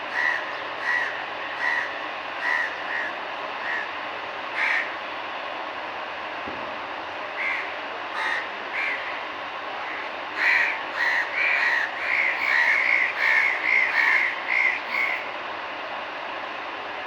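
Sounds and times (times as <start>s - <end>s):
crows cawing: 0.1s - 5.0s, 7.4s - 9.2s, 9.8s - 15.2s.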